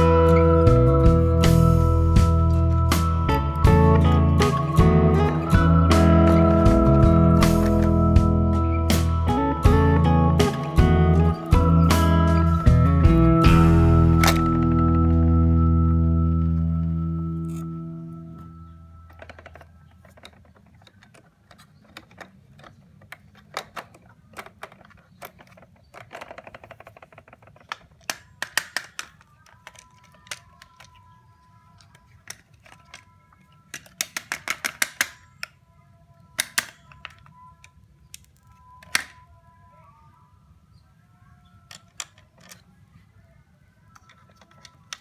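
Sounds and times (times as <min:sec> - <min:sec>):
clicks and taps of small parts: 0:19.1 - 0:31.0, 0:31.8 - 0:35.6, 0:36.4 - 0:37.4, 0:41.7 - 0:42.6.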